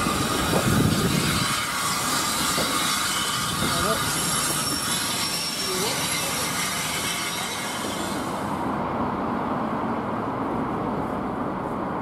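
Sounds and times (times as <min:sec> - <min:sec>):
train hissing: 0:00.0 - 0:08.7
distant diesel locomotive rumble: 0:00.0 - 0:12.0.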